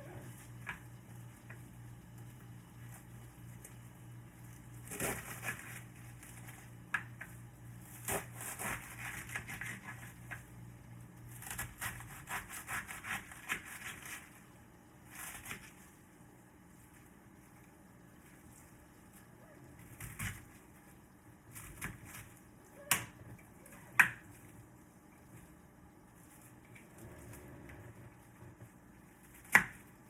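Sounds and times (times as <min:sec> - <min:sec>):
steady low hum: 0:00.0 - 0:12.5.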